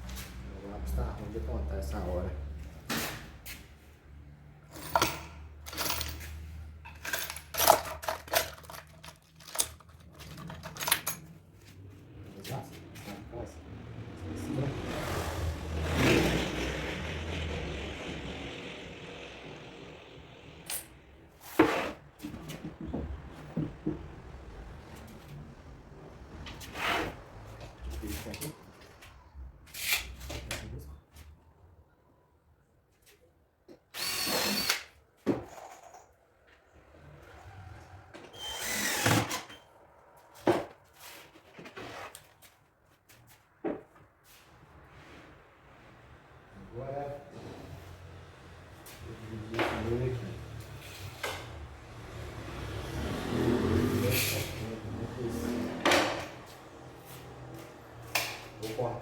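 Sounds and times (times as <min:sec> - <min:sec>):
power drill running: 0:33.9 - 0:34.9, 0:38.3 - 0:39.6.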